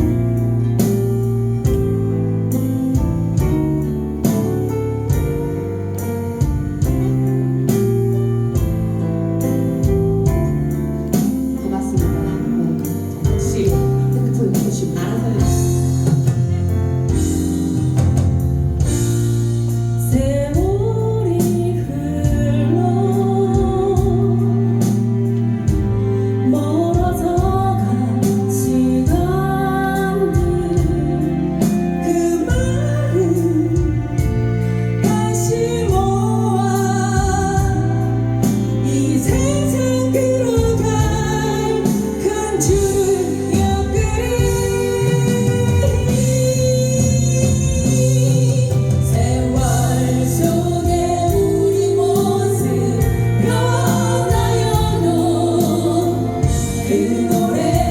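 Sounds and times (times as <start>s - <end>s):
guitar over steady beat: 0.0s - 57.9s
person singing: 35.0s - 57.9s.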